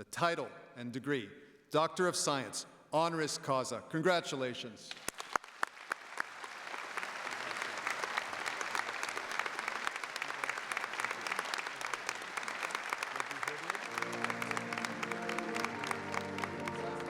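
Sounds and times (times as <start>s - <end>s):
crowd applauding: 4.9s - 17.0s.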